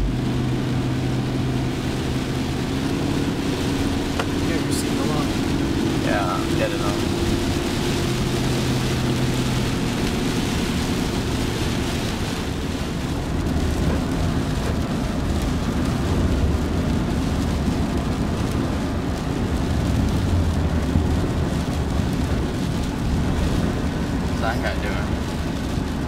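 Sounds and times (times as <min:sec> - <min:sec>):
rain and water spray hiss: 0:00.0 - 0:26.0
truck engine and tyres rumbling: 0:00.0 - 0:26.0.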